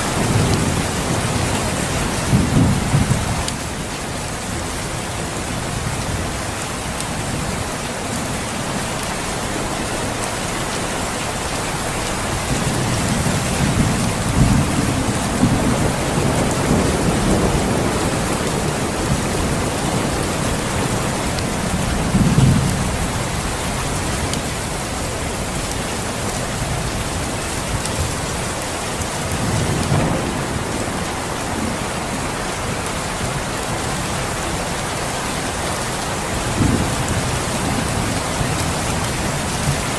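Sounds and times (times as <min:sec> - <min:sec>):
steady rain falling: 0:00.0 - 0:39.9
thunder rumbling: 0:12.2 - 0:25.5, 0:29.0 - 0:34.0.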